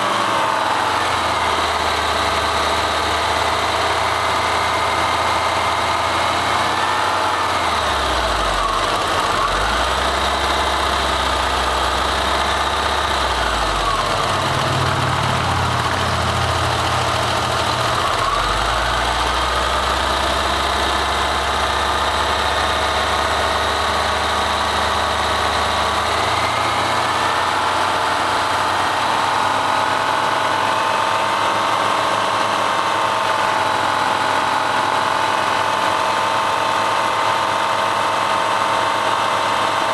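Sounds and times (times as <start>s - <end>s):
engine low rumble: 0.0s - 28.0s.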